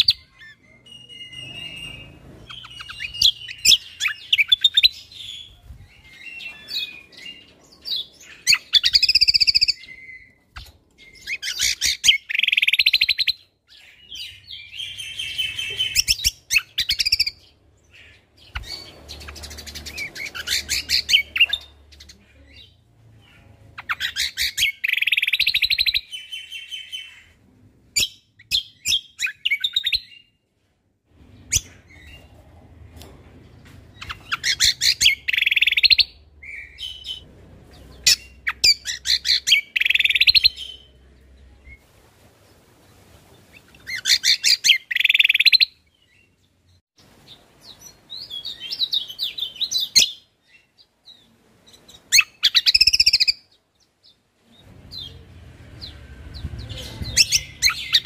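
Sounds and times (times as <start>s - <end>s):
bird singing rapid chirps: 0.0s - 27.3s, 33.9s - 41.1s, 43.7s - 46.4s, 51.9s - 58.0s.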